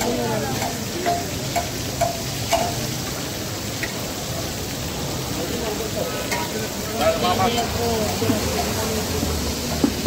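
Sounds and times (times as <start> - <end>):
steel spatula clinking on pan: 0.0 - 3.2
liver sizzling in oil: 0.0 - 10.0.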